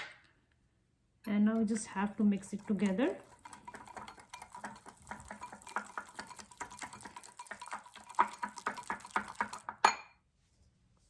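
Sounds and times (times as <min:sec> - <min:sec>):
spoon scraping container: 0:01.6 - 0:09.8
spoon knock: 0:03.6 - 0:10.2.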